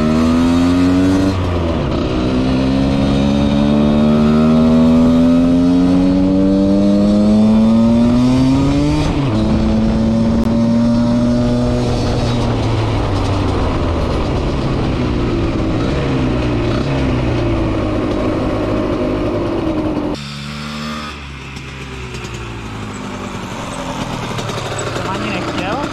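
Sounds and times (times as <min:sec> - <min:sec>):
two-stroke engine revving: 0:00.0 - 0:25.9.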